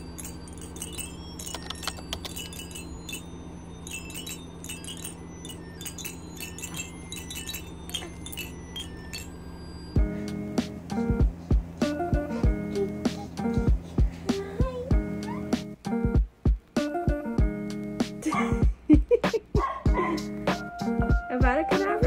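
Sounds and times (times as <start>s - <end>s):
wind chimes tinkling: 0.0s - 10.0s
steady low hum: 0.0s - 20.6s
guitar music: 10.0s - 18.2s.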